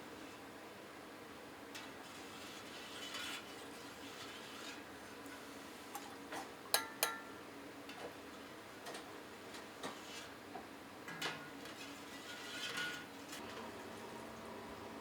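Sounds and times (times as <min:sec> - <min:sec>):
kitchen utensils tapping and clinking: 0:06.0 - 0:07.4.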